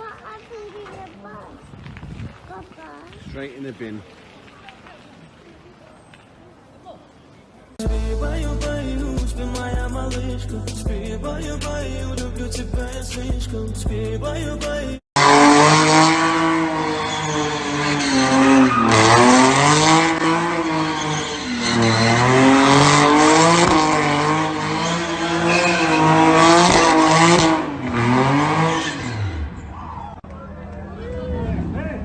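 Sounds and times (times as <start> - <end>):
car engine revving high: 15.2 - 29.6
tyre squeal: 16.7 - 19.6, 20.5 - 22.8, 24.6 - 26.4.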